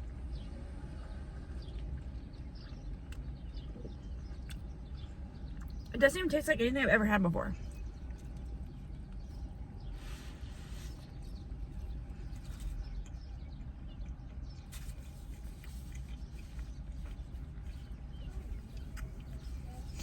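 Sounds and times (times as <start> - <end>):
steady low hum: 0.0 - 20.0
person chewing food: 1.5 - 5.9, 7.6 - 20.0
wet mouth clicks: 3.1 - 4.7.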